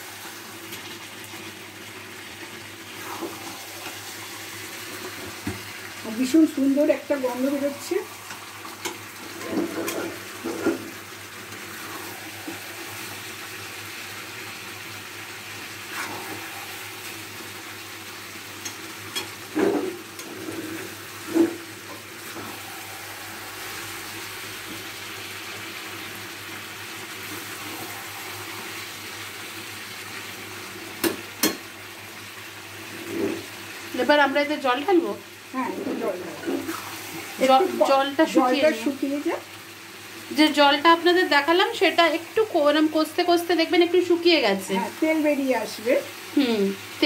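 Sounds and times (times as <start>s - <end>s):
curry sizzling in a pan: 0.0s - 47.0s
spatula scraping and knocking pan: 8.3s - 11.0s.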